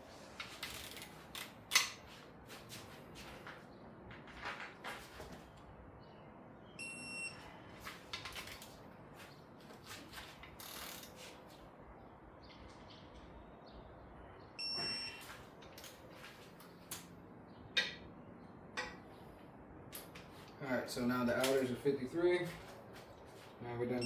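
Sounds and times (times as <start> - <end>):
ratchet clicks: 0.4 - 2.0, 10.4 - 11.2
torque wrench beeping: 6.8 - 7.4, 10.6 - 11.1.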